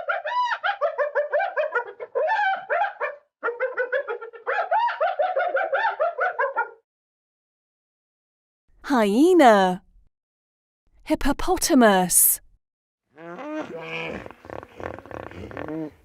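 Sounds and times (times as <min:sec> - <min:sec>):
hyena laughing call: 0:00.1 - 0:06.8.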